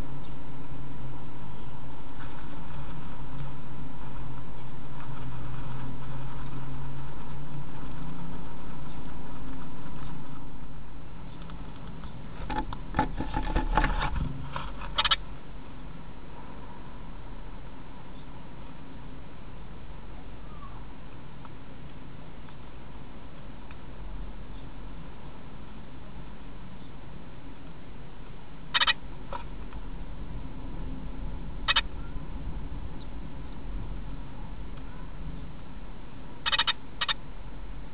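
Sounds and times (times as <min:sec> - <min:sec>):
chicks peeping faintly: 0:00.0 - 0:37.9
bird scratching in nest box: 0:02.2 - 0:20.0, 0:28.0 - 0:37.4
sharp scrapes: 0:12.2 - 0:15.2.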